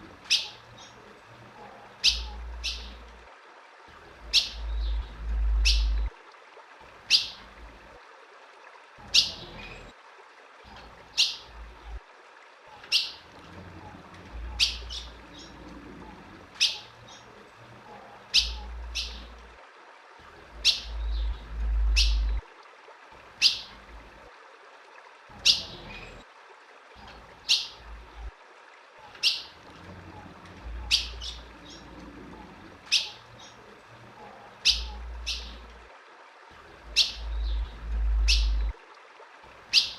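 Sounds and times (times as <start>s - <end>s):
bird chip calls: 0.3s - 1.0s, 2.0s - 3.0s, 4.3s - 6.1s, 12.7s - 13.2s, 14.4s - 15.6s, 16.6s - 17.3s, 18.3s - 19.4s, 20.6s - 22.4s, 23.4s - 23.7s, 29.0s - 29.6s, 30.7s - 31.9s, 32.9s - 33.6s, 34.6s - 35.7s, 36.9s - 38.7s.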